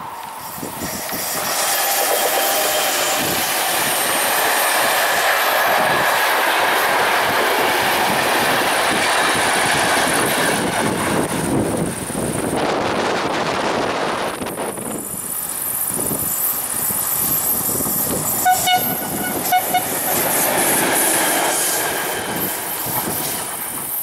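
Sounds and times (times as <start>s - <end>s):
clickety-clack of wheels on track: 0.0s - 24.0s
passenger train passing: 0.0s - 24.0s.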